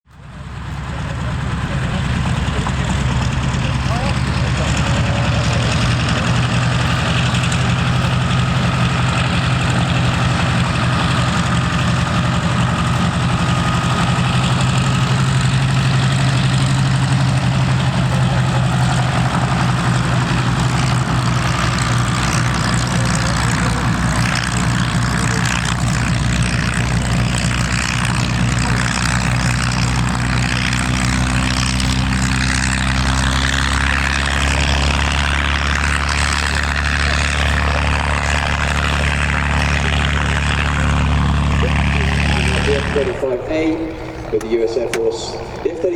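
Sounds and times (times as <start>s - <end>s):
propeller aircraft engine drone: 0.1s - 45.9s.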